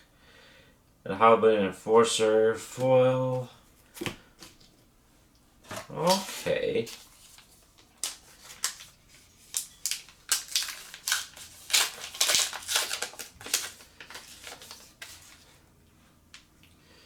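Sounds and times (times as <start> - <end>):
cards shuffling: 5.7 - 15.5
foil wrapper crinkling: 5.8 - 15.6.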